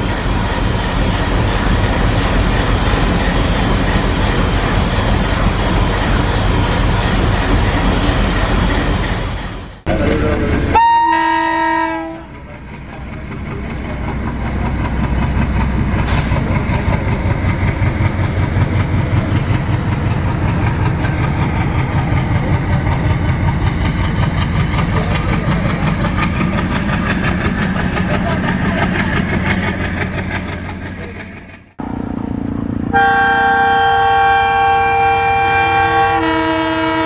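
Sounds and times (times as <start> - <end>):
rhythmic train rumble: 0.0 - 37.0
train horn: 10.7 - 12.3, 32.9 - 37.0.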